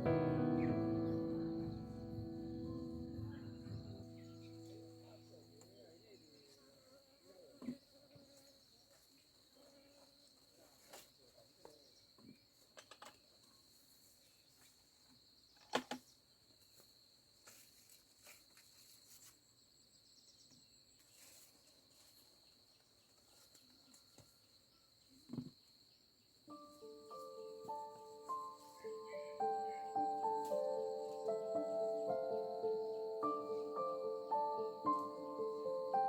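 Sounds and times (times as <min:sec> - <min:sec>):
insects chirring: 0:00.0 - 0:08.9, 0:25.2 - 0:36.0
small clicks and knocks: 0:12.8 - 0:13.2.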